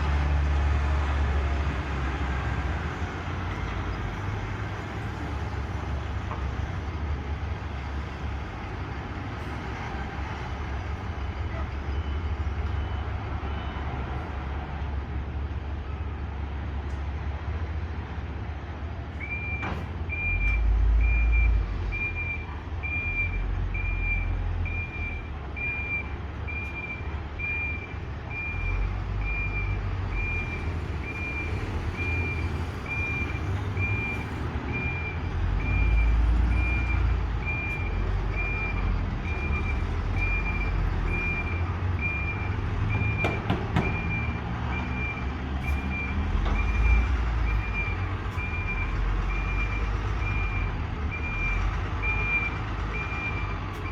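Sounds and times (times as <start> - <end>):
truck engine rumble: 0.0 - 53.9
truck reverse alarm beeping: 11.5 - 14.3, 19.2 - 53.9.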